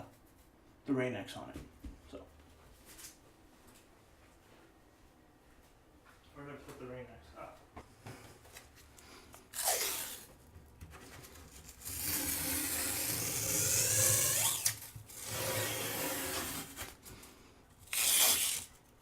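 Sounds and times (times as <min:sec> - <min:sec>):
adhesive tape pulled off roll: 0:09.5 - 0:10.3, 0:11.6 - 0:17.0, 0:17.8 - 0:18.9.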